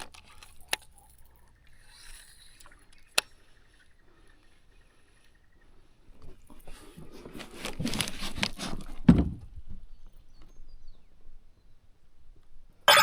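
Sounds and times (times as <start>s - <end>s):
gear clattering and rustling: 6.2s - 9.5s.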